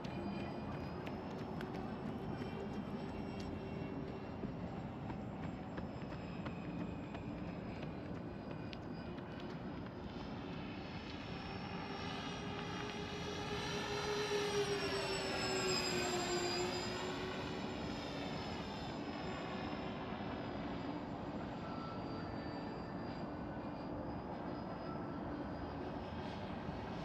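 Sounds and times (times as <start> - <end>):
model plane propellers whining: 5.9 - 27.0.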